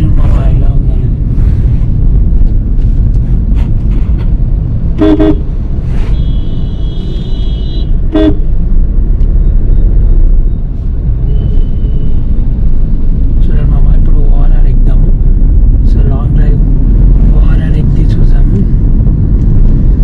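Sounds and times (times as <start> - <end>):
road traffic rumble: 0.0 - 20.0
vehicle horns honking: 5.0 - 5.4, 6.0 - 8.4.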